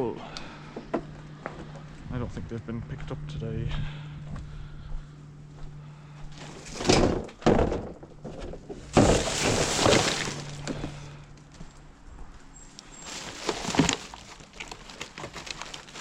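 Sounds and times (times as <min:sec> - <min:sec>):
rubbish rustling and clattering: 0:06.4 - 0:11.2, 0:12.8 - 0:16.0.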